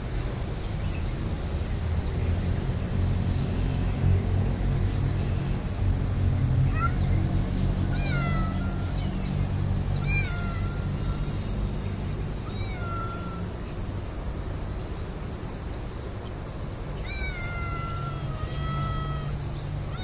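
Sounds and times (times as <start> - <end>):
cat meowing: 6.6 - 7.2, 7.8 - 11.7, 12.4 - 13.7, 17.0 - 20.0.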